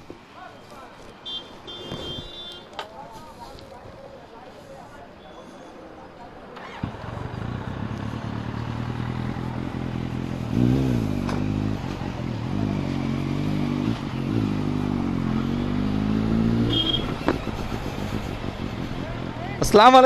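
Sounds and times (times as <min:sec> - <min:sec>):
motorcycle engine revving: 0:06.6 - 0:19.7.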